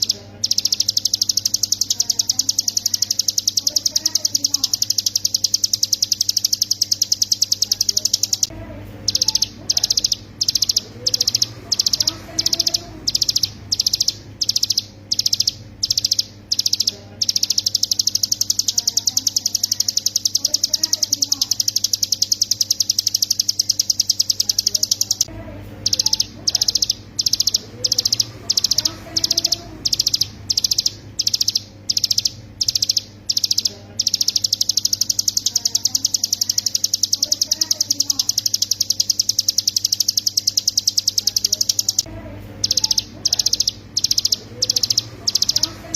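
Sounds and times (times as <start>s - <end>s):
bird singing buzzing trill: 9.1s - 25.3s, 25.9s - 45.9s.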